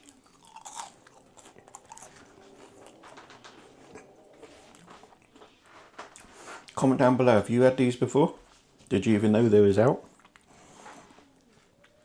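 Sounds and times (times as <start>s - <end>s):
person chewing crispy fries: 0.0s - 6.8s, 10.0s - 12.0s.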